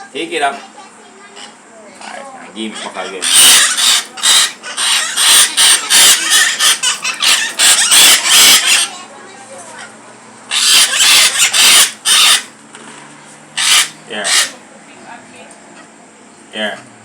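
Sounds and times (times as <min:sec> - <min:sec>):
parrots squawking: 0:01.2 - 0:09.1, 0:09.8 - 0:12.6, 0:13.5 - 0:14.7.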